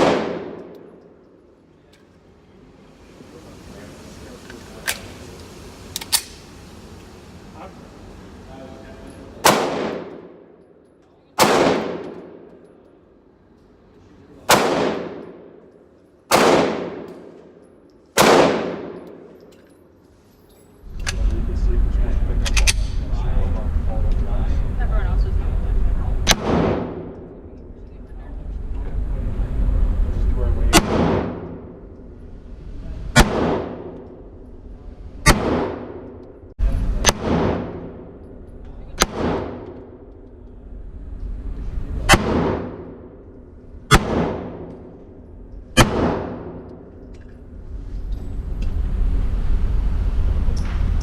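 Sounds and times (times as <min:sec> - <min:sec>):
gunshots with long echo: 0:00.0 - 0:01.0, 0:09.4 - 0:10.5, 0:11.4 - 0:12.5, 0:14.5 - 0:15.6, 0:16.3 - 0:17.3, 0:18.2 - 0:19.3, 0:26.2 - 0:27.2, 0:30.7 - 0:31.9, 0:33.1 - 0:34.3, 0:35.2 - 0:36.1, 0:37.0 - 0:38.2, 0:39.0 - 0:40.1, 0:42.1 - 0:43.3, 0:43.9 - 0:45.0, 0:45.8 - 0:46.9.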